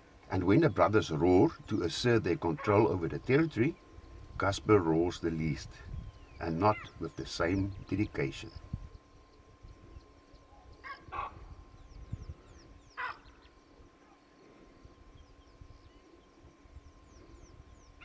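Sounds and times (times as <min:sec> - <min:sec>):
faint high chirping: 0:04.8 - 0:18.0
harsh animal calls: 0:13.0 - 0:13.4.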